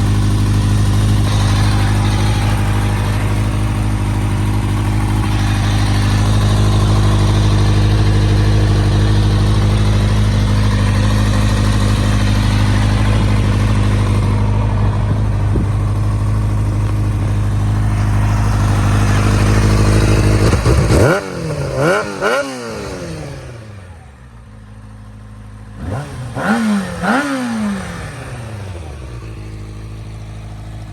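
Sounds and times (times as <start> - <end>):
motorcycle engine idling and revving: 0.0 - 30.9.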